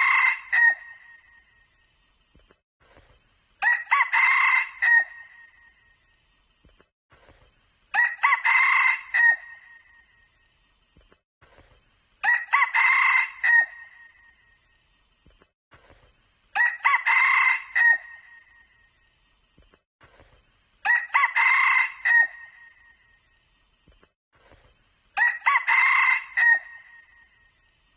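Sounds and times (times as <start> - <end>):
rooster crowing: 0.0 - 1.0, 3.6 - 5.3, 7.9 - 9.8, 12.2 - 14.0, 16.6 - 18.4, 20.8 - 22.7, 25.2 - 27.2.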